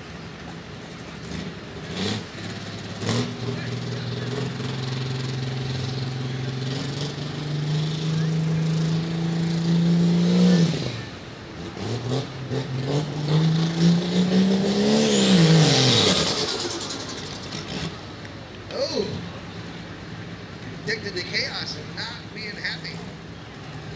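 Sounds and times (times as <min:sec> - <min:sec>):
diesel tractor engine revving: 0:01.1 - 0:20.0.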